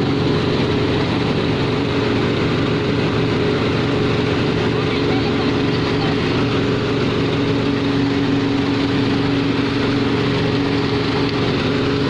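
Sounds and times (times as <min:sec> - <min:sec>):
tractor and mill droning hum: 0:00.0 - 0:12.0.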